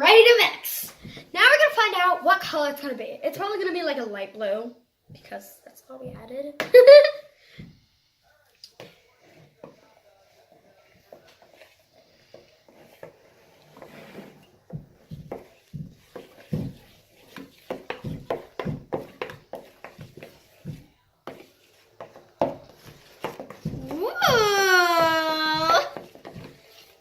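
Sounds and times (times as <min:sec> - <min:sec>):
slime squelching: 0:10.9 - 0:27.0.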